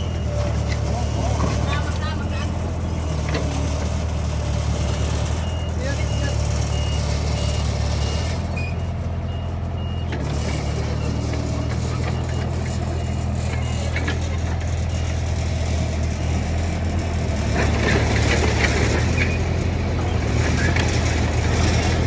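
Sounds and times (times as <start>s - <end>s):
reversing alarm beeping: 0.0s - 3.8s, 4.7s - 16.8s
diesel machine running: 0.0s - 22.0s.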